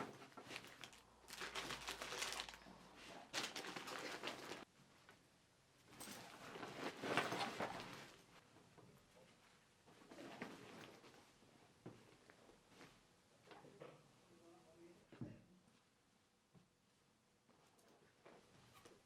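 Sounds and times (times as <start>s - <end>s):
rustling and crinkling: 0.0s - 5.2s, 5.9s - 13.7s.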